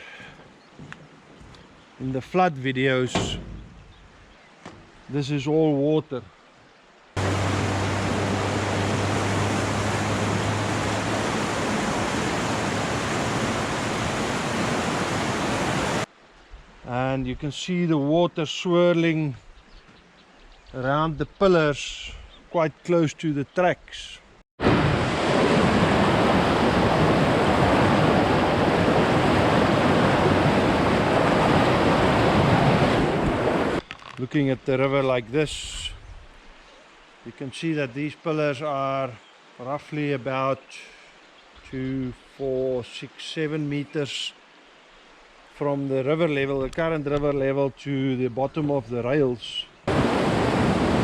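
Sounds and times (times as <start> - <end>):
low hum: 7.2 - 13.4
river water rushing: 7.2 - 16.2, 24.6 - 33.8, 49.9 - 51.0.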